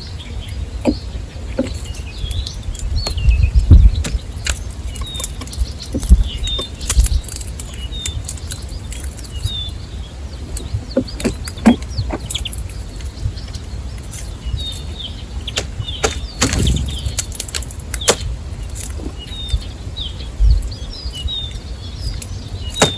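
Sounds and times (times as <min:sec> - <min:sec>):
small birds chirping: 0:00.0 - 0:22.9
dull low thumps: 0:02.8 - 0:04.3, 0:15.8 - 0:18.3.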